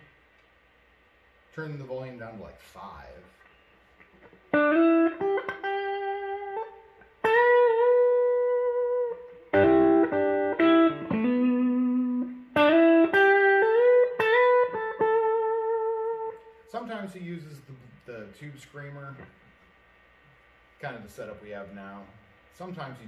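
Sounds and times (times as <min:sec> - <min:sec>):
electric guitar notes through amp: 0:04.6 - 0:16.4.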